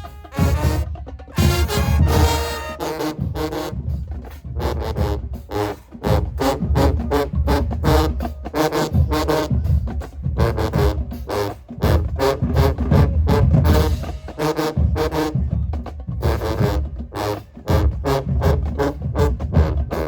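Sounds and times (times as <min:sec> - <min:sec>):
marching band playing: 0:00.0 - 0:20.0.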